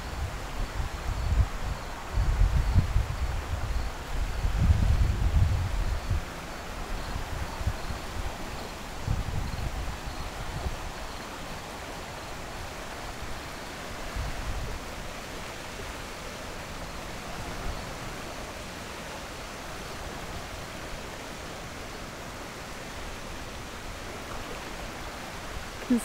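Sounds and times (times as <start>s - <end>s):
wind buffeting microphone: 0.0s - 11.3s
floodwater rushing down creek: 0.0s - 26.0s.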